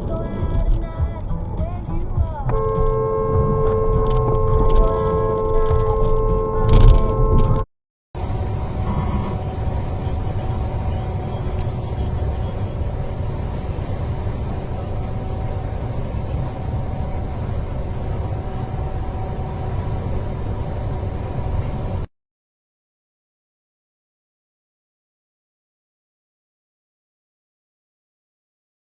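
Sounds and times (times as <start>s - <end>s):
vehicle rumble: 0.0s - 22.1s.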